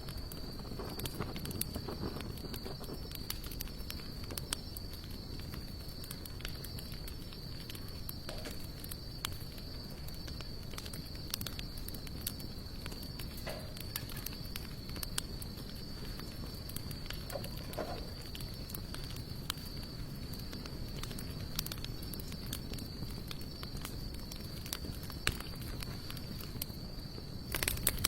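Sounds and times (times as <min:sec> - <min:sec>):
sharp pops and snaps: 0:00.0 - 0:28.0
wood fire crackling: 0:00.0 - 0:28.0.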